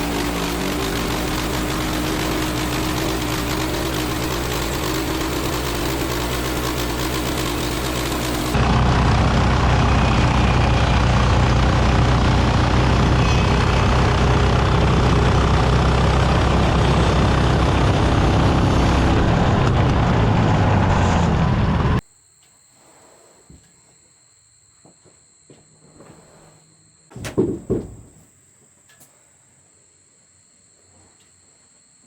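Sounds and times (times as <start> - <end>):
bandsaw mill sawing a log: 0.0 - 22.0.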